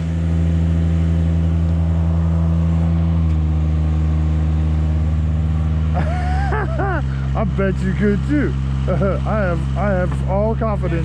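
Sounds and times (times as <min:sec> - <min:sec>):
tracked lift engine running: 0:00.0 - 0:11.0.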